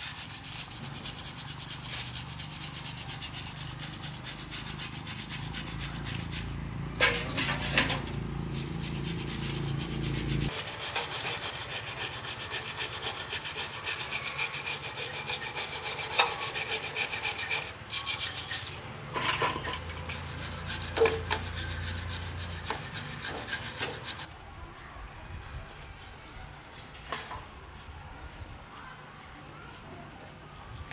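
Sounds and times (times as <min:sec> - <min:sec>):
hand sanding strokes: 0:00.0 - 0:07.8, 0:08.4 - 0:18.8, 0:19.9 - 0:24.3.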